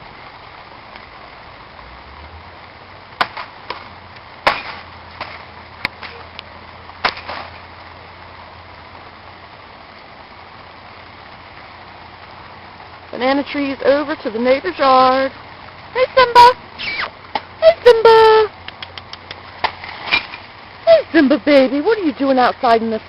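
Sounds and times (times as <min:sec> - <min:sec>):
steady rain: 0:00.0 - 0:23.0
sharp taps: 0:18.6 - 0:19.8.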